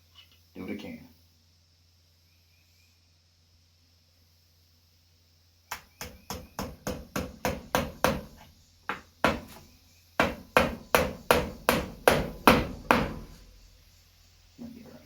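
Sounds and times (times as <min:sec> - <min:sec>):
hammer driving nails: 0:05.7 - 0:09.6, 0:10.2 - 0:13.5.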